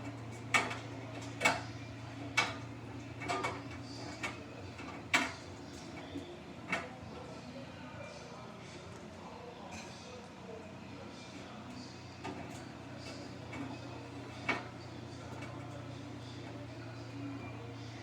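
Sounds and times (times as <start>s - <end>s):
washing machine humming: 0.0s - 6.9s, 11.5s - 18.0s.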